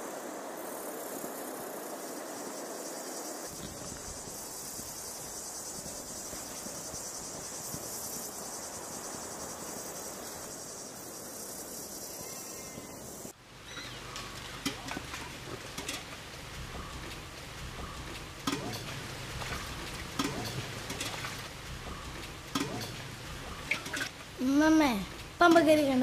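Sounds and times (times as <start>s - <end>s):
high-pitched insect chorus: 0.0s - 14.0s
open-field background hiss: 0.0s - 26.0s.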